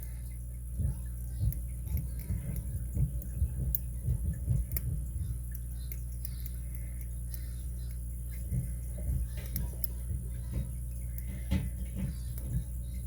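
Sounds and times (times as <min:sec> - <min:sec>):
steady low hum: 0:00.0 - 0:13.0
dull low thumps: 0:00.7 - 0:05.5, 0:08.4 - 0:13.0.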